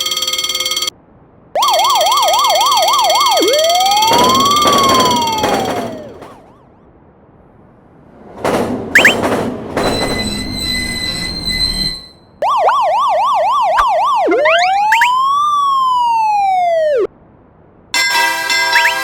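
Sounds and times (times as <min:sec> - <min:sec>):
police siren: 0:00.0 - 0:00.9, 0:01.6 - 0:06.8, 0:09.0 - 0:09.2, 0:12.4 - 0:17.1
steady ringing tone: 0:00.0 - 0:01.0, 0:01.6 - 0:06.5, 0:12.4 - 0:17.1
cartoon whoosh and rumble: 0:01.6 - 0:06.7, 0:12.4 - 0:17.1.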